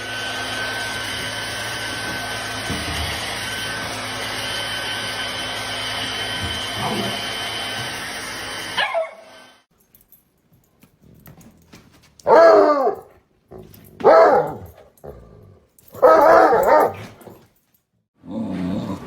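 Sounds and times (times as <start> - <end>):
dog barking: 12.2 - 13.1, 14.0 - 14.8, 15.9 - 17.3.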